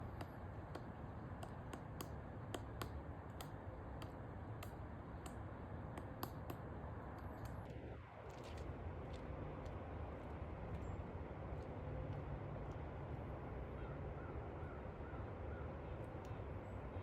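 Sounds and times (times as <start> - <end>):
woodpecker pecking wood: 0.0 - 7.6.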